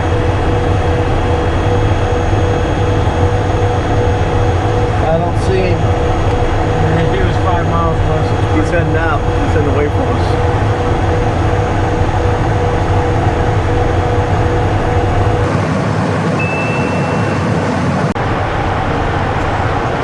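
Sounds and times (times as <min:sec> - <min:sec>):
jet engines humming: 0:14.6 - 0:20.0
brief high tone: 0:15.4 - 0:18.2
rushing air: 0:15.4 - 0:20.0.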